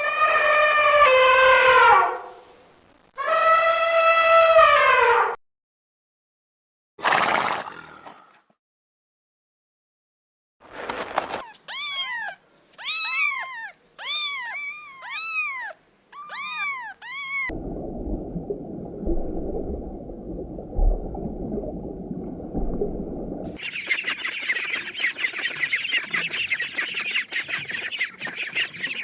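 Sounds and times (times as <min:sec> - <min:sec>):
cat meowing: 0:11.4 - 0:17.5
low steady rumble: 0:17.5 - 0:23.6.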